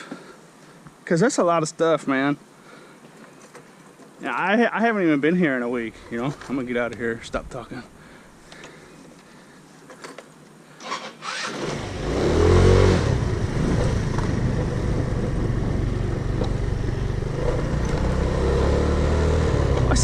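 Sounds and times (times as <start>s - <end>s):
car engine starting and idling: 10.9s - 20.0s.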